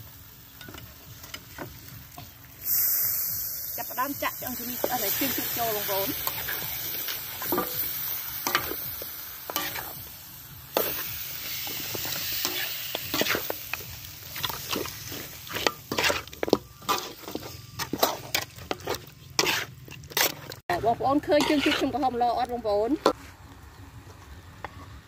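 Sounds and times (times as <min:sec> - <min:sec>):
pork sizzling in oil: 0:00.0 - 0:20.6
metal ladle scraping wok: 0:02.6 - 0:23.3.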